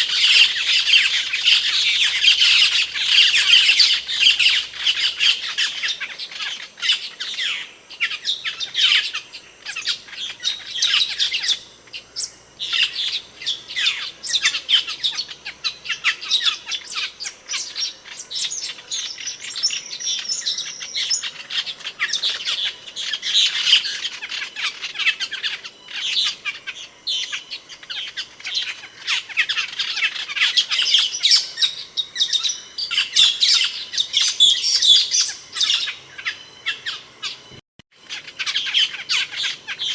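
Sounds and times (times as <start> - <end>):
starling chirping and squawking: 0.0 - 39.9.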